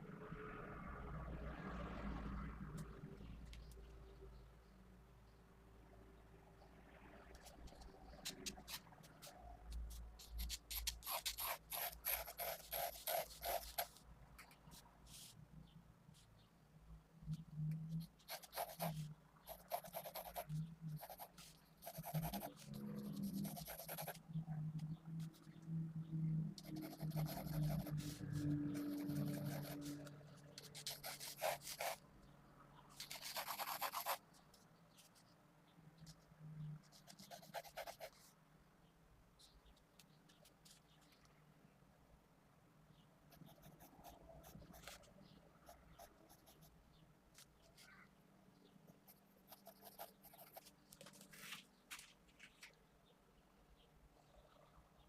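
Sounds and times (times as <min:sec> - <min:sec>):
pencil sketching on paper: 0:08.7 - 0:14.0, 0:18.0 - 0:24.2, 0:26.6 - 0:32.0, 0:33.0 - 0:34.2, 0:37.0 - 0:38.3, 0:49.1 - 0:50.7.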